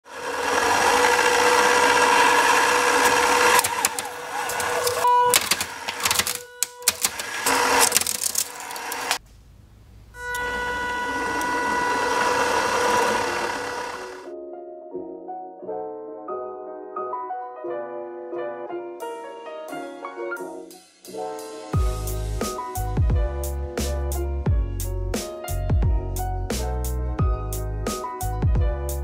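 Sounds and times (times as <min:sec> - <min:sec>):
shredder motor whining: 0:00.0 - 0:09.2, 0:10.2 - 0:14.3
cracks and snaps of shredding: 0:03.5 - 0:09.2.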